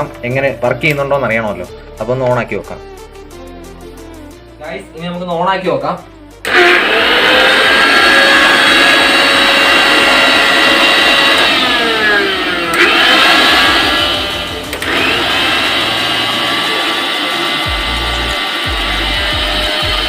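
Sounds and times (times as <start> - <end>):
mixer grinder motor whining: 6.4 - 20.0.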